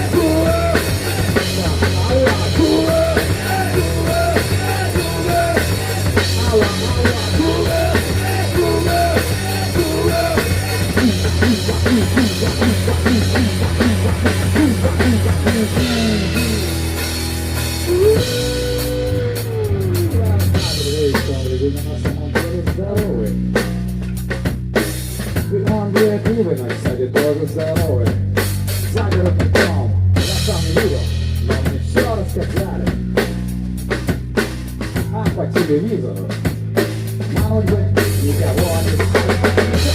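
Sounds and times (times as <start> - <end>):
drum hits: 0.0 - 19.1
rock music: 0.0 - 39.9.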